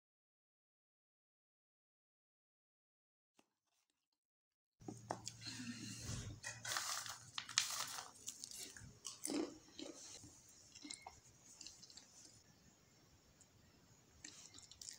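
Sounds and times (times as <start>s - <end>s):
crunchy chewing and biting: 6.6s - 12.1s.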